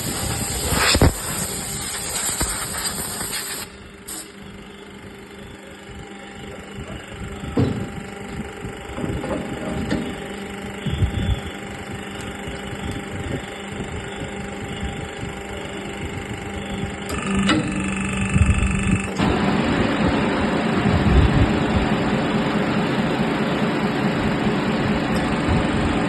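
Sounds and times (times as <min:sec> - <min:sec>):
drill motor humming: 0:03.6 - 0:19.2.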